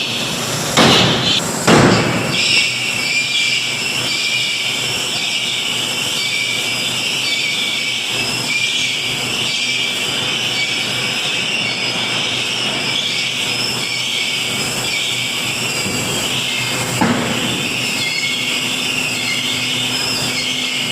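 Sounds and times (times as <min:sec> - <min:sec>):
loud machinery noise: 0:00.0 - 0:20.9
sharp metal impact: 0:00.8 - 0:02.6.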